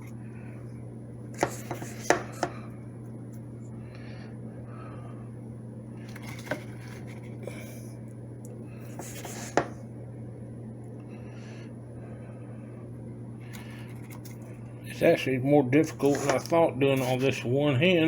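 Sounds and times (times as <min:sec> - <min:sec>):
steady low hum: 0:00.0 - 0:18.0
coffee grounds rustling and scraping: 0:15.9 - 0:17.4.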